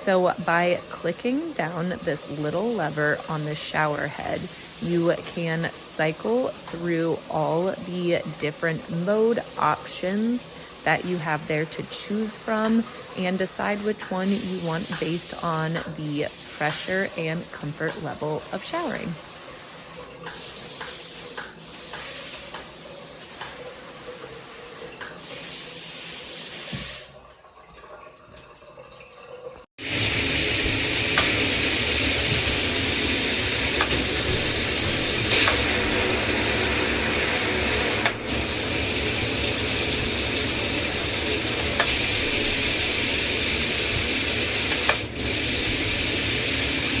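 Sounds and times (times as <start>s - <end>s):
shower head spraying water: 0.0s - 27.1s, 29.8s - 47.0s.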